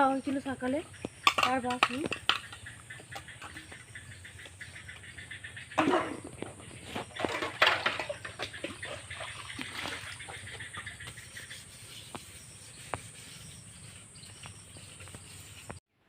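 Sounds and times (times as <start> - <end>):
metal pots being scoured: 5.8 - 15.8.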